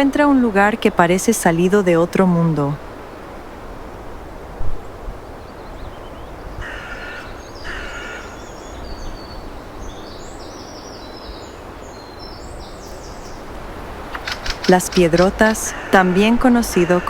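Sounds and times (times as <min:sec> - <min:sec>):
background hiss: 0:00.0 - 0:17.0
small birds chirping: 0:04.7 - 0:17.0
bird harsh calls: 0:05.5 - 0:17.0.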